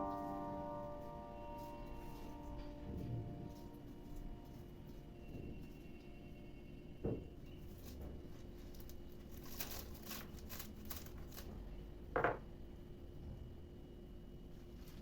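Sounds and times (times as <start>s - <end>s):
faint steady hum: 0.0s - 15.0s
household items clicking and rustling: 7.7s - 11.6s.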